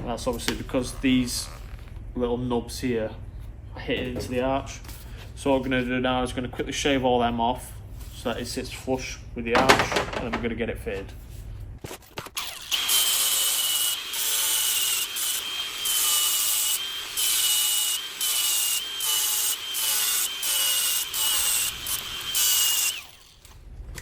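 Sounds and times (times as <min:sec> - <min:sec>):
power grinder whining and rasping: 0:12.4 - 0:23.6.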